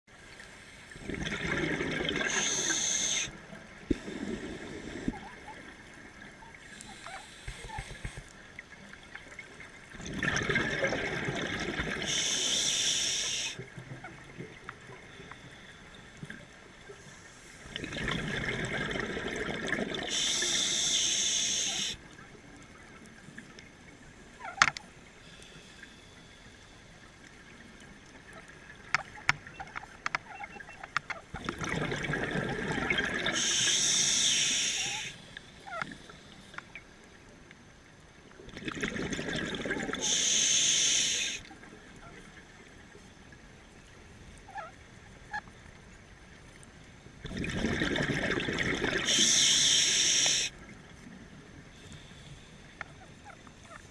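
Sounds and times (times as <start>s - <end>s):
diver breathing through regulator: 2.1s - 3.3s, 11.9s - 13.6s, 20.1s - 22.0s, 33.1s - 35.2s, 39.9s - 41.5s, 49.0s - 50.5s.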